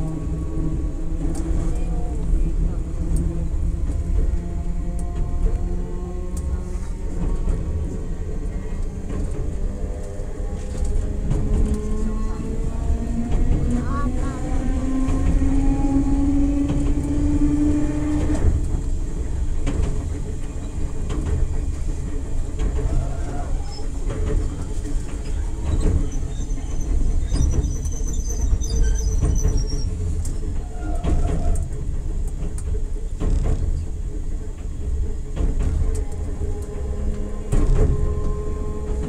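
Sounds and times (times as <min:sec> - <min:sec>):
train wheels rumbling on rail: 0:00.0 - 0:39.0
faint high wheel squeal: 0:22.8 - 0:31.6.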